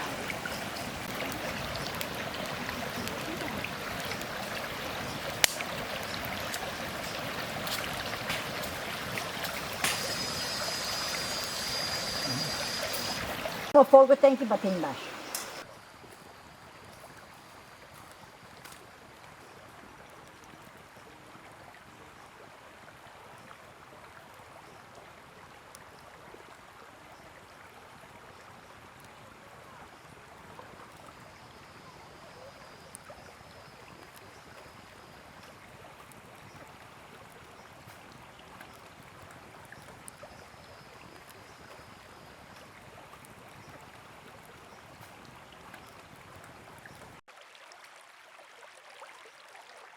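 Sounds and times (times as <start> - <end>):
faint high whistles: 9.7 - 13.7.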